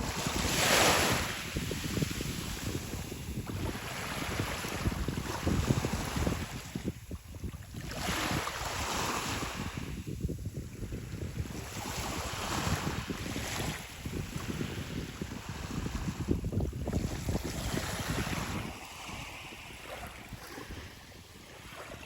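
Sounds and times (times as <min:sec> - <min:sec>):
sea waves washing onto shore: 0:00.0 - 0:07.0
wind buffeting microphone: 0:00.0 - 0:22.0.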